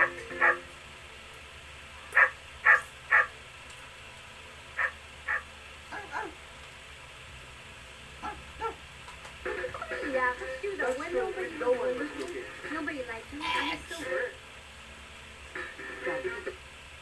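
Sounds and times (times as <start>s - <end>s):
dog barking: 0.4s - 0.7s, 2.0s - 3.4s, 4.8s - 6.4s, 8.2s - 8.8s.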